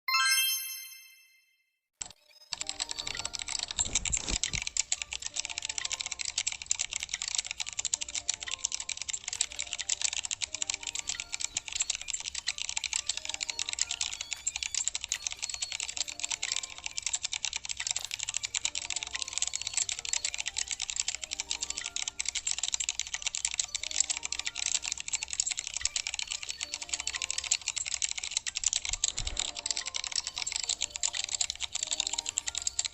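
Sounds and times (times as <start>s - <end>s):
chime ringing: 0.1s - 1.6s
keyboard typing clicks: 2.0s - 32.9s.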